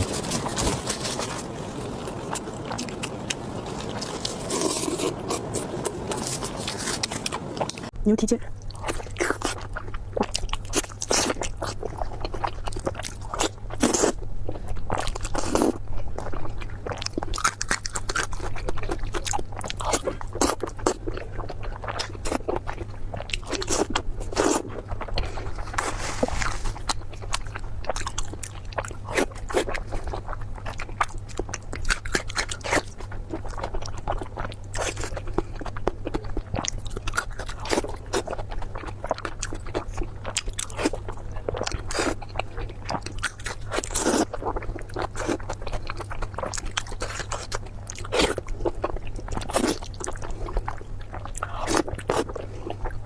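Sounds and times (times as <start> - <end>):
wet chewing: 0.0 - 8.0, 8.6 - 53.0
steady low hum: 0.0 - 53.0
crunchy bites: 14.9 - 53.0.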